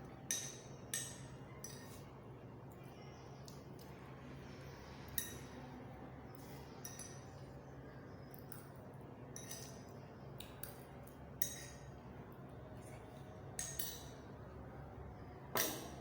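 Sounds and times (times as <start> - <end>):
low room hum: 0.0 - 16.0
tableware clinking: 15.6 - 16.0.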